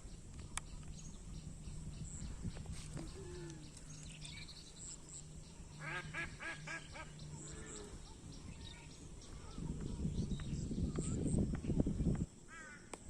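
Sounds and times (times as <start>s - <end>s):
steady low hum: 0.0s - 12.9s
ducks quacking: 5.8s - 8.1s.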